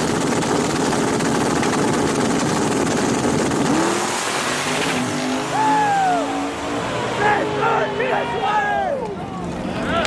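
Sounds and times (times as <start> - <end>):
truck engine running roughly: 0.0 - 4.1.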